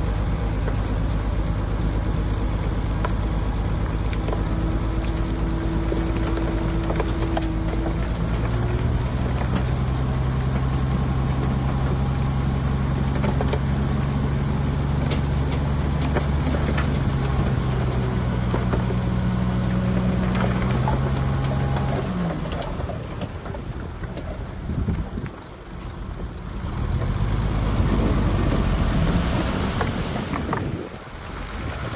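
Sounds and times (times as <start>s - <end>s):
heavy diesel engine running: 0.0s - 31.9s
clanks and rattles: 3.0s - 27.3s.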